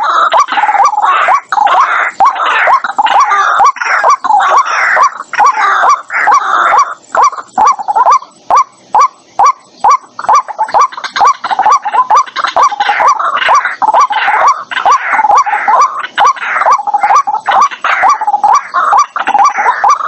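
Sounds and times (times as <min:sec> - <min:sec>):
bird rasping calls: 0:00.0 - 0:20.0
bird repeating hooked notes: 0:00.0 - 0:20.0.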